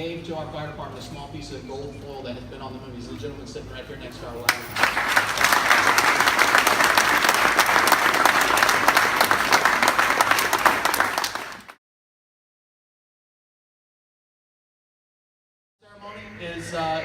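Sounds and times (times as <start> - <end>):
audience applauding: 4.5 - 11.8.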